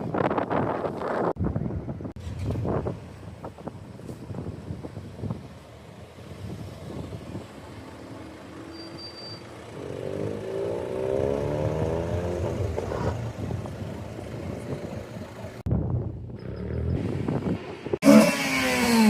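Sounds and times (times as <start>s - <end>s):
car engine accelerating: 9.6s - 15.7s.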